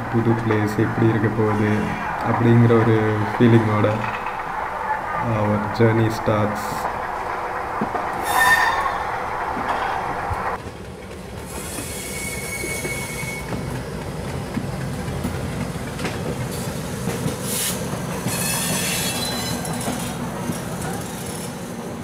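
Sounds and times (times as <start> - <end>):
train rumbling on rails: 0.0 - 22.0
wheel squeal: 8.2 - 10.1, 11.5 - 13.8, 17.4 - 21.7.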